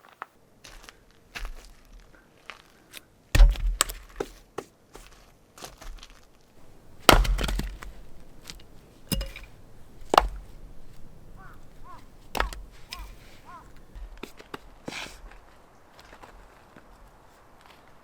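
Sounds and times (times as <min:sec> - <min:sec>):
wood splitting crackle: 0:03.4 - 0:04.2, 0:06.6 - 0:14.6.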